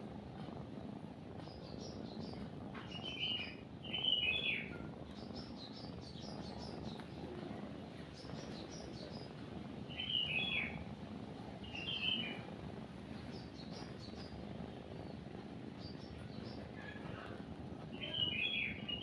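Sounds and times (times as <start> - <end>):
cat purring: 0.0 - 19.0
songbirds chirping: 1.2 - 19.0.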